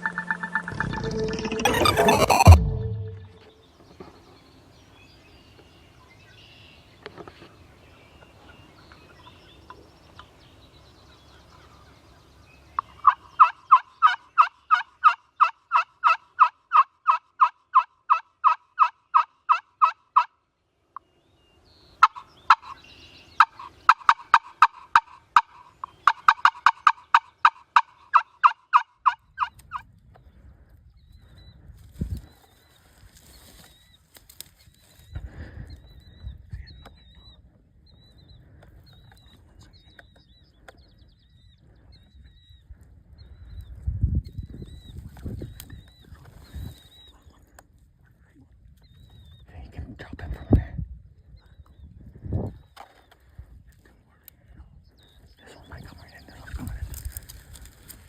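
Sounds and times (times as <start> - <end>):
wild turkey calling: 11.2 - 20.3, 22.0 - 29.8.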